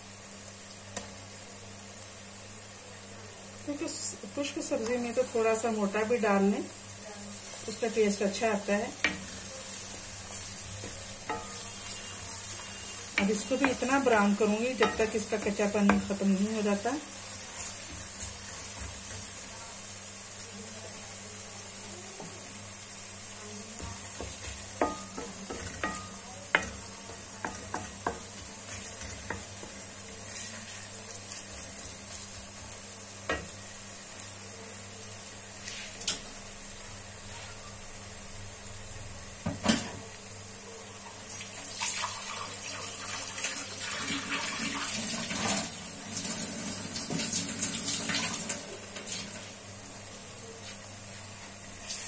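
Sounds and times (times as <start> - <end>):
onions sizzling in oil: 0.0 - 52.0
wooden spoon stirring and scraping: 7.3 - 19.8, 23.8 - 32.7
spoon knocking against pan: 13.2 - 14.0, 14.7 - 16.2, 23.8 - 28.5.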